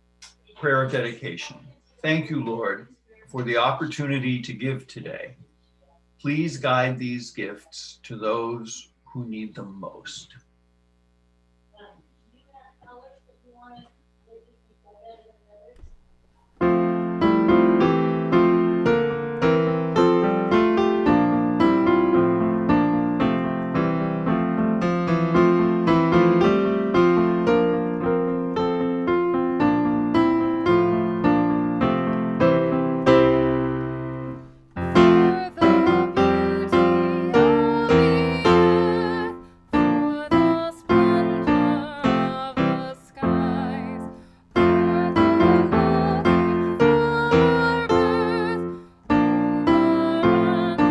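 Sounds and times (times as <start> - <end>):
solo piano playing: 16.6 - 50.9.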